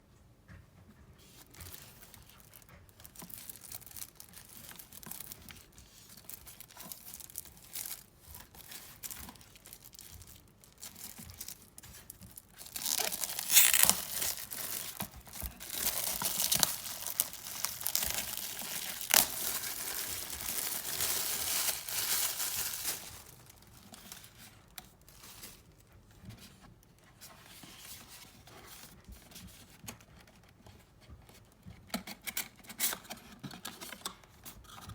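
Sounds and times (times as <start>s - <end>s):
packaging rustling and clicks: 1.4s - 25.7s
packaging tearing and crinkling: 1.5s - 25.6s
sharp rips: 12.6s - 23.5s.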